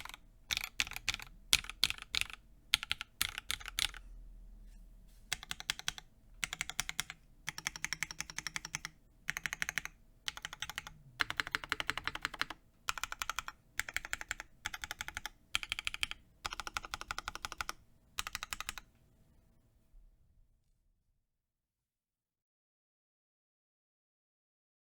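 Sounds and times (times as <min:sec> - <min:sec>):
mechanical keyboard typing: 0:00.0 - 0:04.0, 0:05.3 - 0:18.9.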